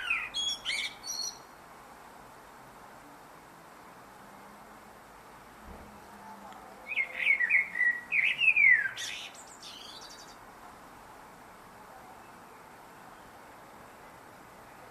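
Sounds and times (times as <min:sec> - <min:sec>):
blackbird singing: 0:00.0 - 0:01.5, 0:06.8 - 0:10.4.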